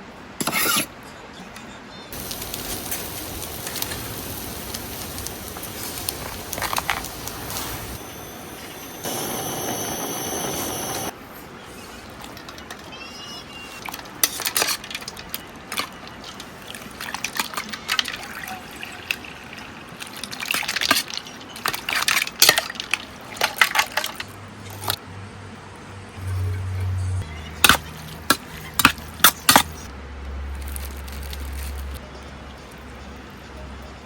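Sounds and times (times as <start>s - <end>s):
stream water running: 2.2s - 11.1s, 13.8s - 25.0s.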